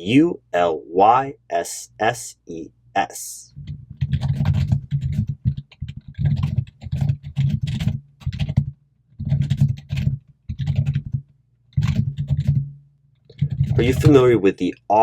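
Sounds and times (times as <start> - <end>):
typing on computer keyboard: 3.6 - 12.6, 13.2 - 14.2.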